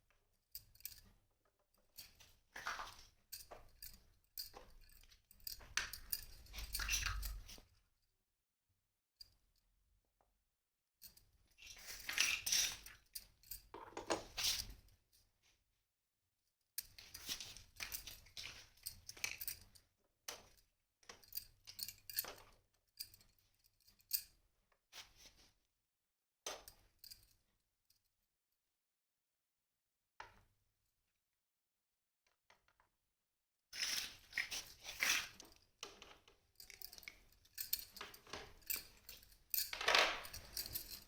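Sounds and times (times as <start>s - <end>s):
plastic toy pieces rustling: 36.6s - 41.0s.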